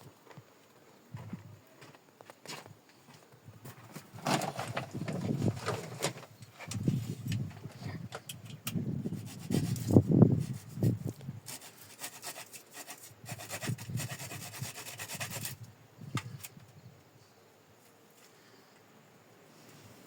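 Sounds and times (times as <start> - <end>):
steady rubbing: 9.0 - 15.6.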